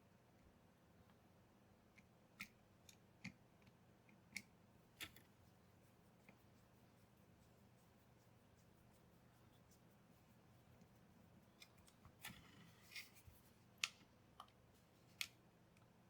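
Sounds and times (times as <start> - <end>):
faint sharp clicks: 13.8 - 14.6.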